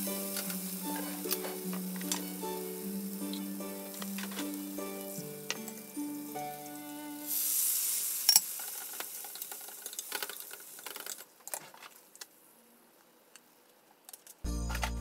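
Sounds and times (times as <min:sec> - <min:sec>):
shrimp sizzling in hot oil: 0:00.0 - 0:11.2.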